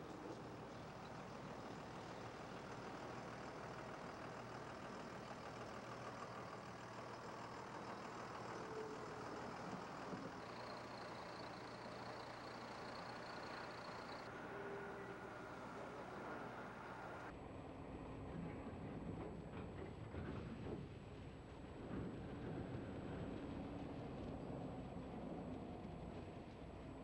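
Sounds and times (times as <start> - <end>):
heavy truck engine idling: 0.1 - 17.3
faint high whine: 7.9 - 17.3.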